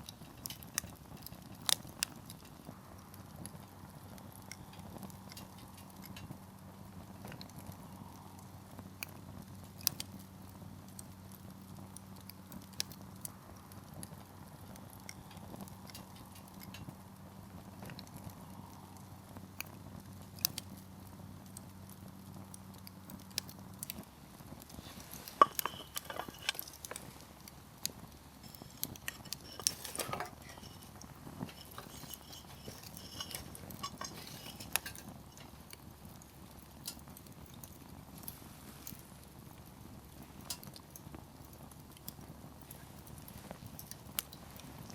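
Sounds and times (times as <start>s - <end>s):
campfire crackling and popping: 0.0s - 44.9s.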